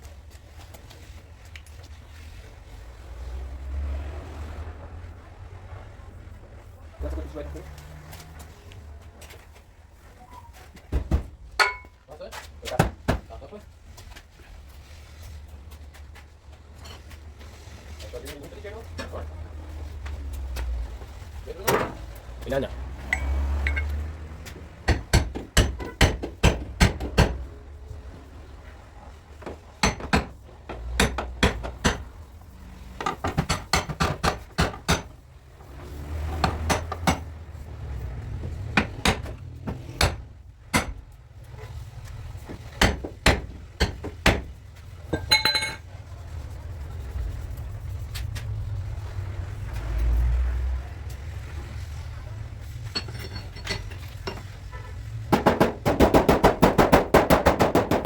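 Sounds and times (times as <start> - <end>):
hammer tapping sheet metal: 29.8 - 32.1, 55.3 - 58.0.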